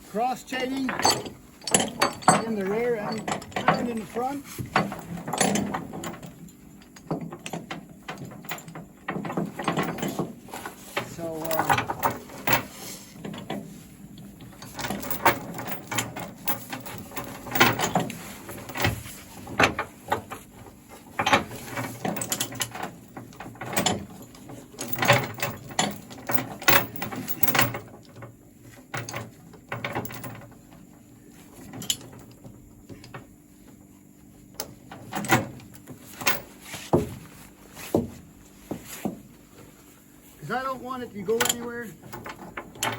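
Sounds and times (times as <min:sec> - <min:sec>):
steel chains clanking: 0:00.2 - 0:28.3, 0:29.0 - 0:30.6, 0:35.1 - 0:36.6, 0:40.4 - 0:42.9
chain binder clicking: 0:00.7 - 0:30.6, 0:34.6 - 0:36.5, 0:41.3 - 0:42.9.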